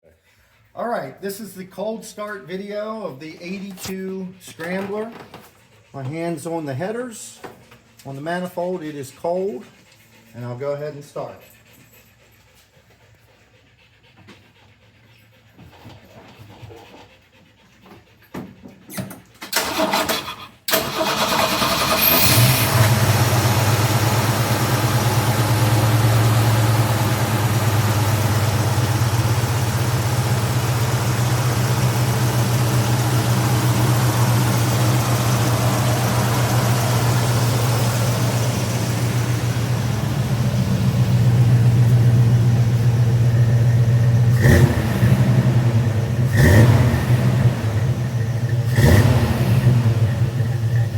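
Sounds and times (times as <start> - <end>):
engine cranking: 19.4 - 50.9
engine idling: 19.6 - 50.9.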